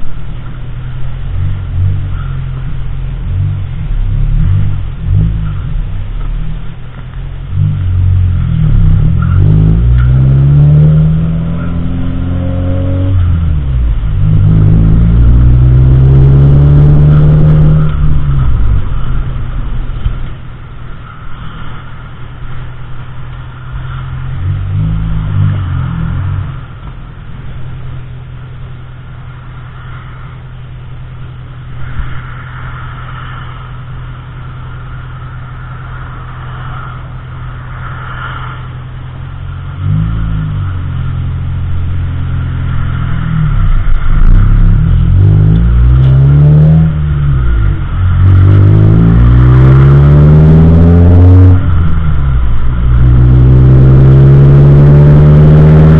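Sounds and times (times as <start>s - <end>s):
car engine revving: 0.0s - 55.9s.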